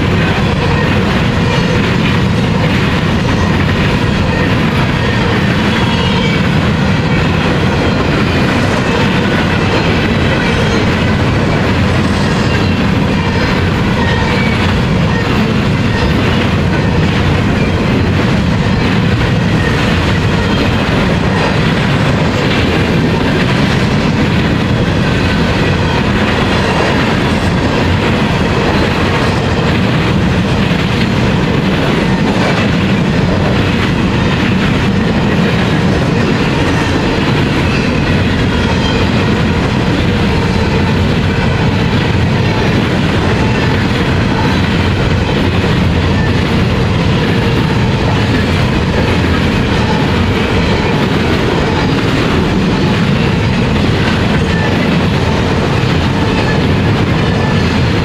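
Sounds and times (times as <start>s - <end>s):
train wheels rumbling on rail: 0.0s - 58.0s
wheels clickety-clack over track: 0.0s - 58.0s.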